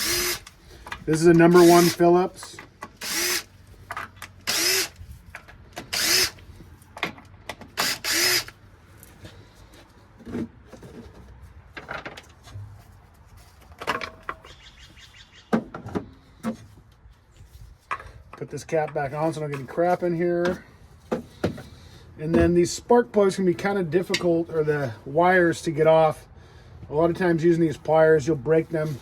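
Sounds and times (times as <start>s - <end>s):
cordless drill spinning: 0.0s - 2.2s, 2.9s - 3.6s, 4.2s - 5.0s, 5.8s - 6.5s, 7.7s - 8.6s
clicks and knocks of parts: 0.3s - 1.8s, 2.4s - 3.1s, 3.8s - 6.1s, 6.8s - 9.4s, 13.6s - 14.6s.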